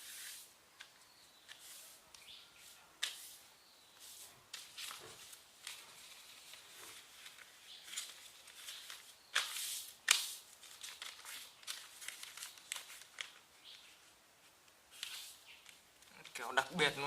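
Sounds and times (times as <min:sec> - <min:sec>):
paper snap: 0:03.0 - 0:03.3, 0:07.4 - 0:13.4
paper rustling and crinkling: 0:04.0 - 0:17.0.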